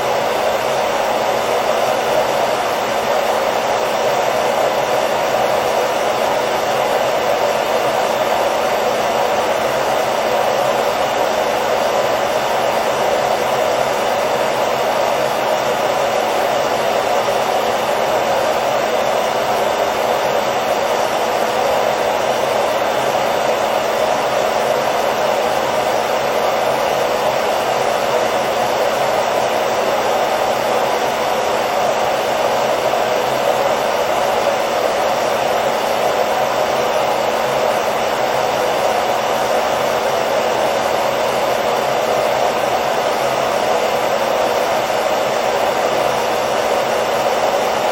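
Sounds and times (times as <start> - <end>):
hair dryer running: 0.0 - 47.9.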